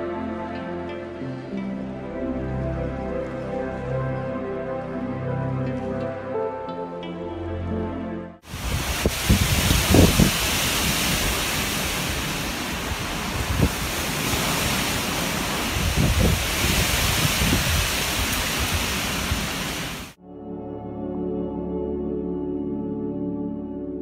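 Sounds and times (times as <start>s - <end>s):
steady rushing outdoor noise: 8.4s - 20.2s
wind buffeting microphone: 8.4s - 20.2s.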